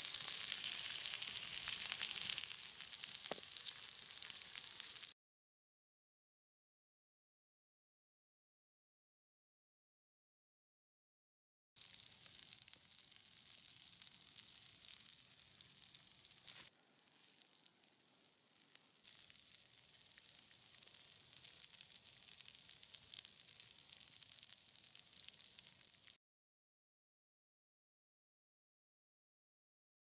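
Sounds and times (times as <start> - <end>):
potatoes sizzling in a pan: 0.0 - 5.2, 11.8 - 26.2.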